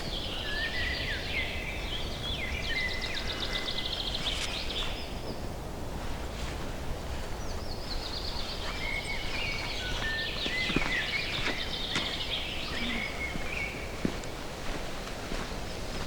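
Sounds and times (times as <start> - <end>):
songbird singing trills: 7.6 - 14.0.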